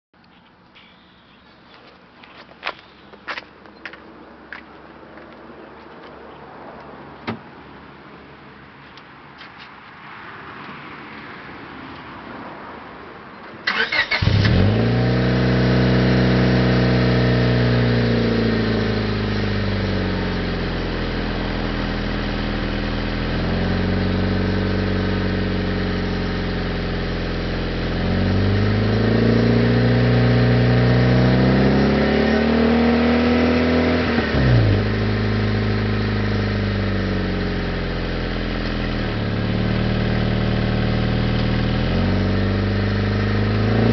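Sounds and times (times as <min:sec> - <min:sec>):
car engine cranking and starting: 0:13.6 - 0:20.2
car engine idling: 0:13.7 - 0:29.0, 0:34.1 - 0:43.9.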